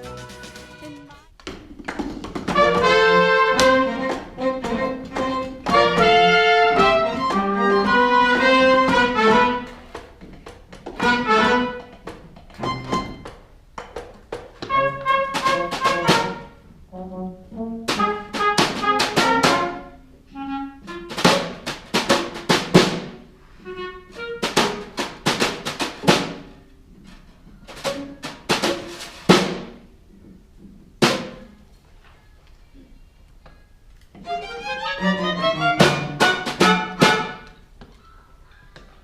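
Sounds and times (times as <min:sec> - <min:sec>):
pit orchestra playing: 0:00.0 - 0:01.2, 0:02.6 - 0:09.7, 0:34.5 - 0:37.5
sharp drum kit hits: 0:00.0 - 0:01.2, 0:28.5 - 0:29.8.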